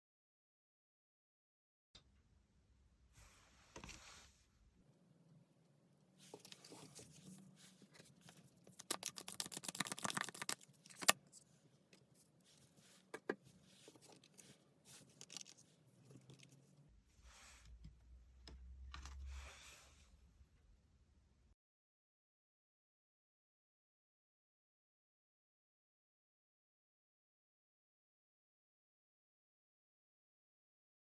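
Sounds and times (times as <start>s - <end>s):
cards rustling and shuffling: 6.2s - 11.4s, 12.5s - 16.6s.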